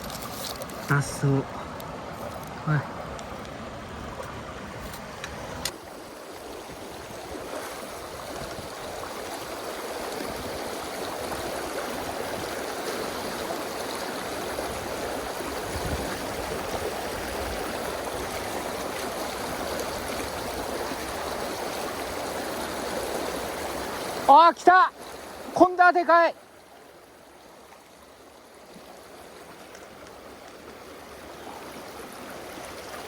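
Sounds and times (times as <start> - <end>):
stream water rushing: 0.0 - 33.0.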